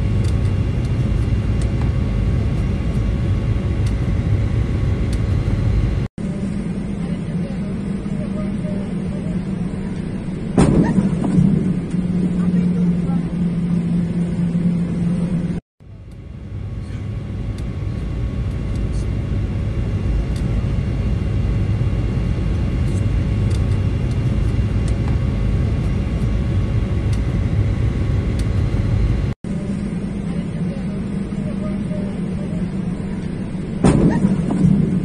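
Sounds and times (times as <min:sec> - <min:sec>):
airliner cabin roar: 0:00.0 - 0:35.0.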